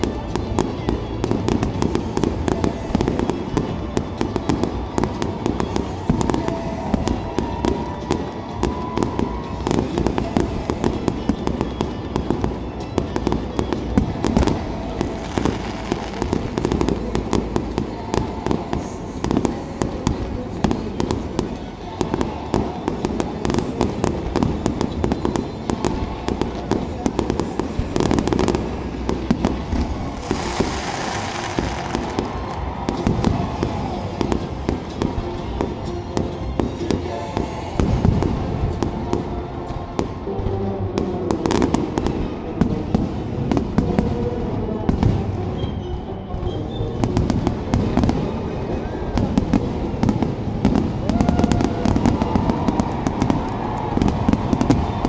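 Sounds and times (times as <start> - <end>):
fireworks booming and crackling: 0.0 - 55.0.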